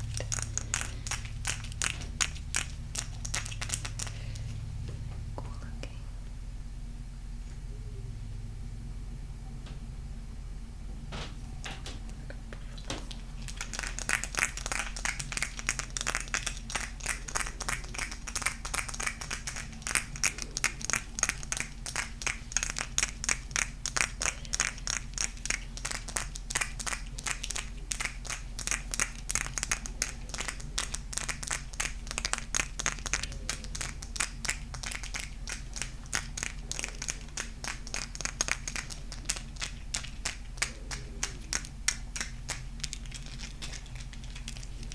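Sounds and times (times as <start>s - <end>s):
faint low hum: 0.0s - 44.9s.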